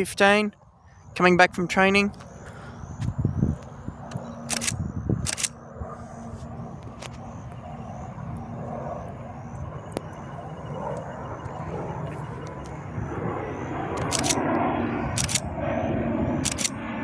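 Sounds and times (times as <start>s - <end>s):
turboprop plane approaching: 0.0s - 17.0s
sharp clicks: 3.0s - 5.6s, 13.9s - 15.5s, 16.4s - 16.8s.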